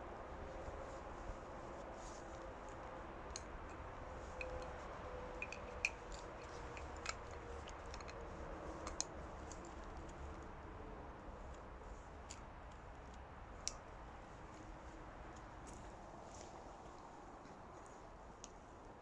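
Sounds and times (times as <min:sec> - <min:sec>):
outdoor background noise: 0:00.0 - 0:19.0
faint sharp clicks and ticks: 0:02.7 - 0:10.5, 0:11.5 - 0:14.7.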